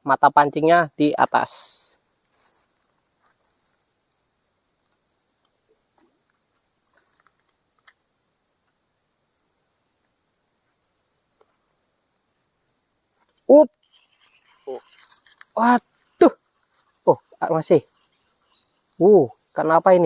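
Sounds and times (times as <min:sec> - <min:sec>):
insects trilling: 0:00.0 - 0:20.0
faint clicks: 0:04.9 - 0:08.0.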